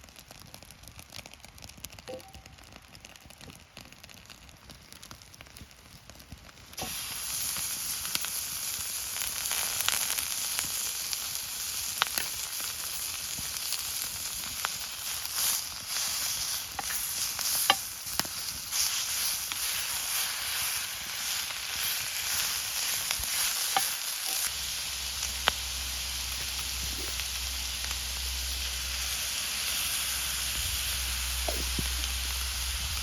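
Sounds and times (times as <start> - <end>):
food sizzling in a pan: 6.7 - 33.0.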